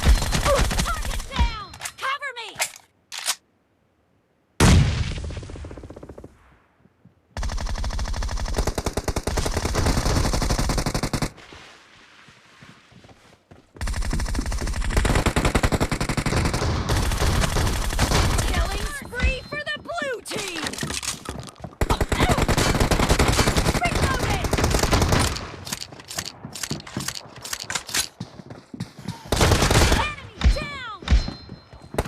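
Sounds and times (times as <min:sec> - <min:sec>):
video game automatic gunfire: 0:07.4 - 0:11.3, 0:13.8 - 0:19.0.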